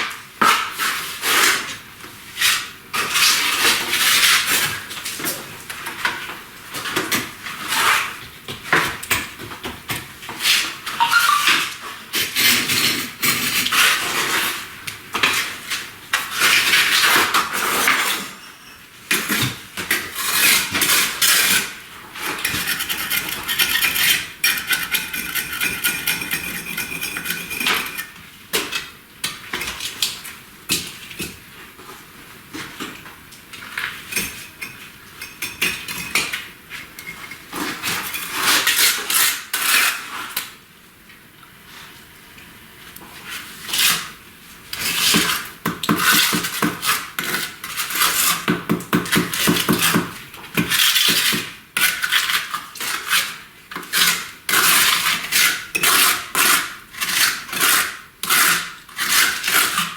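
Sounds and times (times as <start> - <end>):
trowel scraping on brick: 20.2 - 28.2, 44.8 - 59.9.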